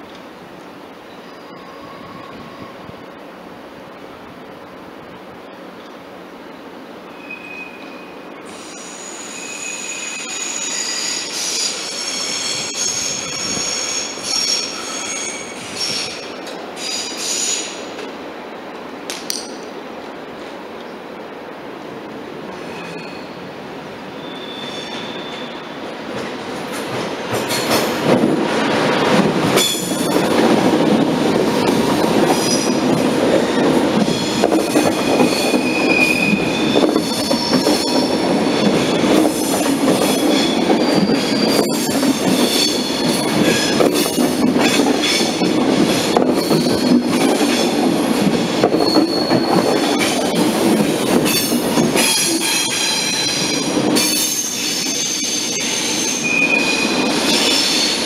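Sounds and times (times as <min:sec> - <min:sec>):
train wheels squealing: 0:01.1 - 0:02.8, 0:07.0 - 0:17.9, 0:22.6 - 0:23.4, 0:24.2 - 0:25.8, 0:32.3 - 0:32.8, 0:33.4 - 0:47.7, 0:48.4 - 0:50.5, 0:51.2 - 0:58.0.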